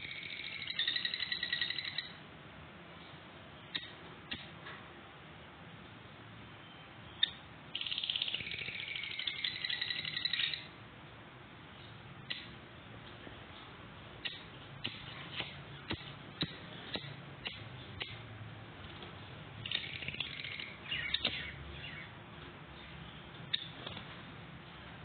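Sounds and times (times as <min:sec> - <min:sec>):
bird chirping: 0:00.0 - 0:02.2, 0:06.6 - 0:10.7, 0:19.2 - 0:24.0
bird clicks: 0:03.7 - 0:04.5.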